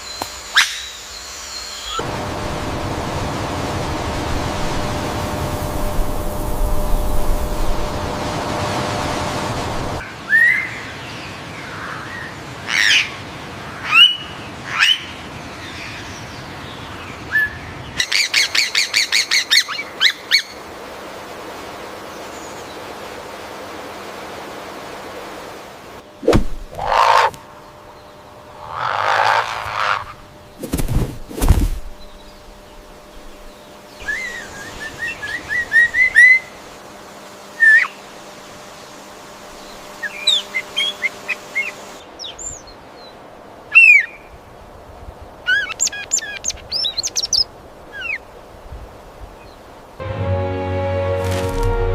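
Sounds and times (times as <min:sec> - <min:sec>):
harsh bird calls: 0:26.7 - 0:30.8
rising whistled bird notes: 0:34.0 - 0:36.6.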